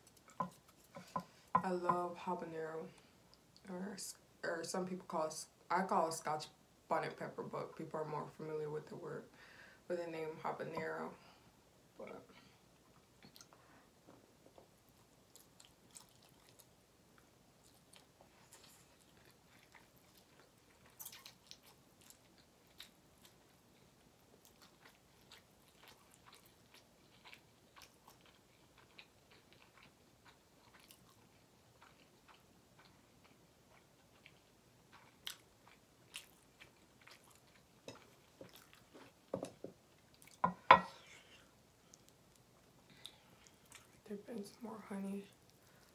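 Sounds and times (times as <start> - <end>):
person chewing noodles: 14.5 - 39.3, 41.0 - 44.0.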